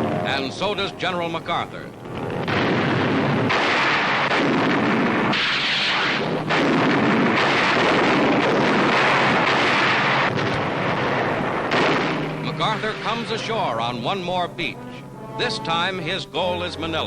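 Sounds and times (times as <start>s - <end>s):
artillery fire and explosions: 1.9s - 13.5s.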